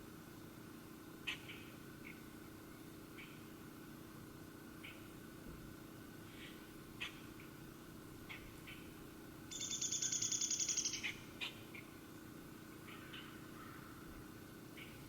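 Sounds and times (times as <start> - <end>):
short high bird chirps: 9.5 - 11.1
songbird rapid trill: 9.5 - 11.9.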